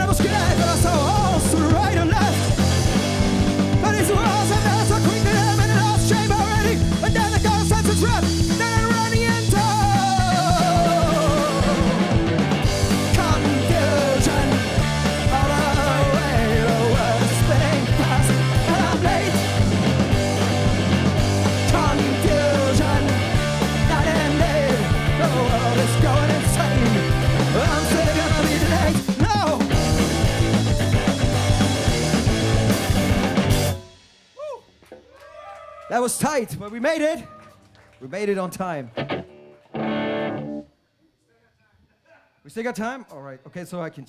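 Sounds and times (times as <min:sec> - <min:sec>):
bass notes: 0:00.0 - 0:34.0
live rock band playing: 0:00.0 - 0:34.4, 0:38.9 - 0:40.7
guitar bending notes: 0:39.0 - 0:40.7.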